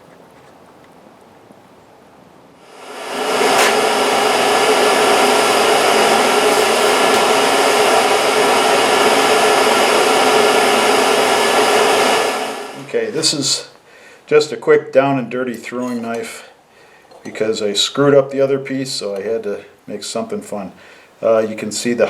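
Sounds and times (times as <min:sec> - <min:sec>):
forge air blower running: 0:02.6 - 0:13.1.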